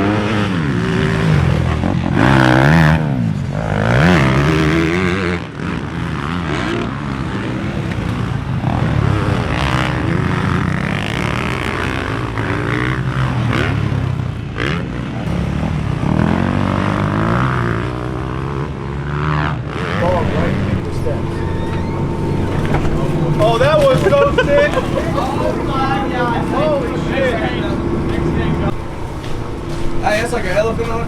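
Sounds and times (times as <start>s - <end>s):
dirt bike motor: 19.6s - 31.0s.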